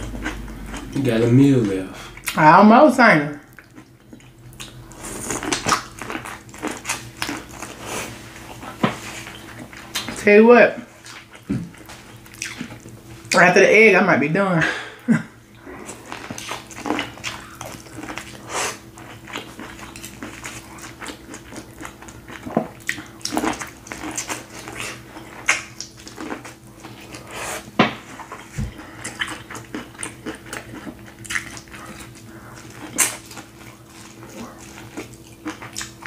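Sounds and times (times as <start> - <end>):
wet chewing and lip-smacking: 3.5 - 7.8, 11.0 - 13.0, 15.8 - 27.3, 28.2 - 36.0.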